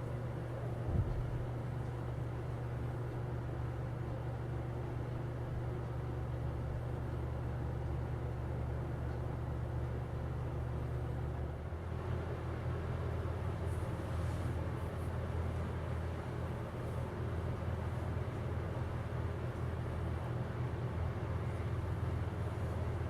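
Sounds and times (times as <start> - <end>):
rush of air from fan: 0.0 - 3.9, 10.6 - 23.0
box fan motor hum: 0.0 - 23.0.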